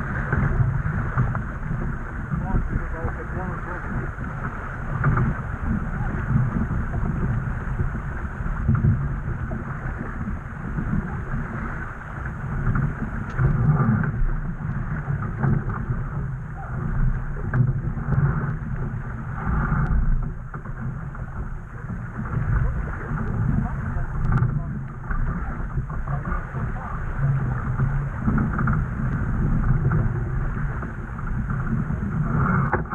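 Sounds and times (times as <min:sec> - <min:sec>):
water splashing along hull: 0:00.0 - 0:32.9
wind buffeting microphone: 0:00.0 - 0:32.9
faint clicks: 0:24.2 - 0:26.3.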